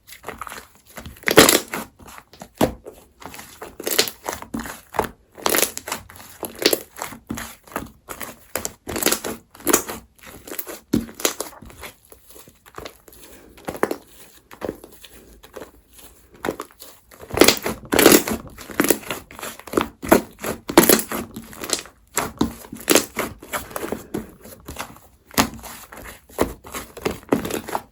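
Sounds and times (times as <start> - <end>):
slime squeezed with sticky pops: 1.1 - 2.6, 3.7 - 4.8, 8.3 - 11.7.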